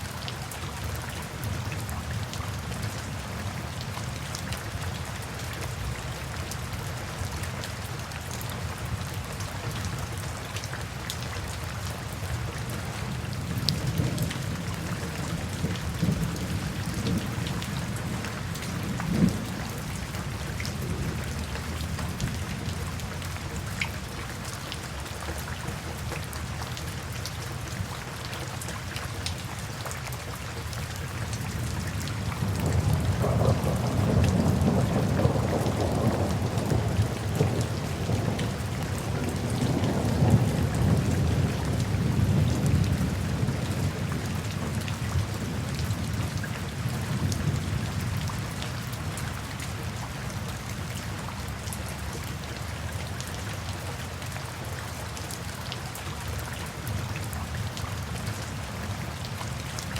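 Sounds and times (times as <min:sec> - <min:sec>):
steady rainfall: 0:00.0 - 0:59.9
low thunder rumble: 0:13.5 - 0:20.1, 0:32.4 - 0:46.3.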